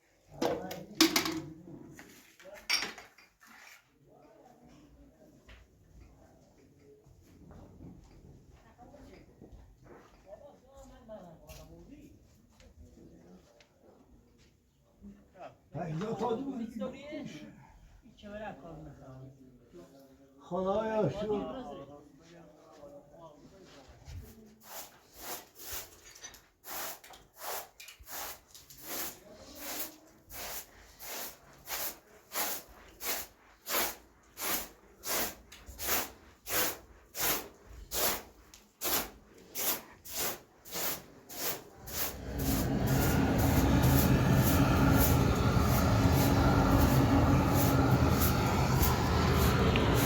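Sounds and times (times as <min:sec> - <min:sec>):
rhythmic scraping strokes: 0:41.3 - 0:50.0
engine running loudly: 0:41.9 - 0:50.0.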